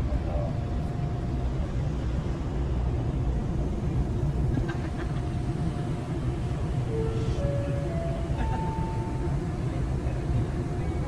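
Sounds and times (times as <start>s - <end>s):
ferry engines droning: 0.0s - 11.0s.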